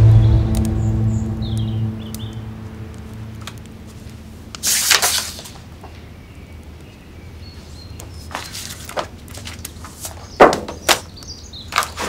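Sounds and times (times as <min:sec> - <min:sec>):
paper rustling: 0:04.6 - 0:05.7, 0:08.2 - 0:11.1, 0:11.7 - 0:12.0
faint birds chirping: 0:05.7 - 0:08.9, 0:09.5 - 0:12.0.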